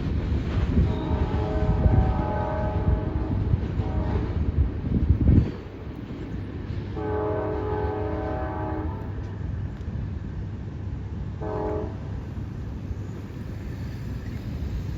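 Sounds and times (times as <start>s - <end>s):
train rumbling: 0.0s - 14.9s
locomotive air horn blasts: 0.8s - 4.4s, 7.0s - 9.1s, 11.4s - 12.0s.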